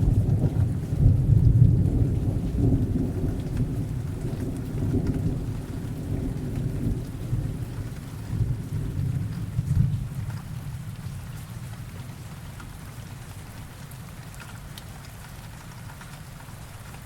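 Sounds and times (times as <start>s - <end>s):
thunder rumbling: 0.0s - 10.7s
steady rain: 0.0s - 17.0s.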